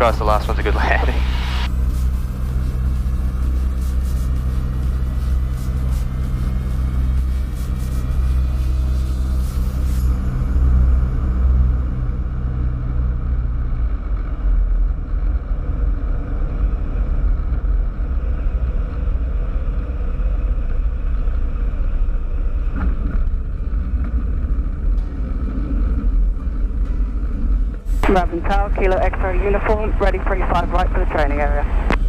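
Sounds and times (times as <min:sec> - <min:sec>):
airflow noise: 0:00.0 - 0:11.1
piston aircraft engine drone: 0:00.0 - 0:32.0.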